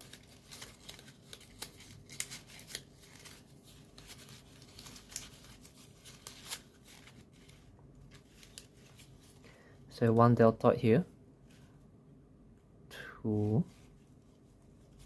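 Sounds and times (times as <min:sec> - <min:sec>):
paper clicks and crinkles: 0:00.0 - 0:09.4.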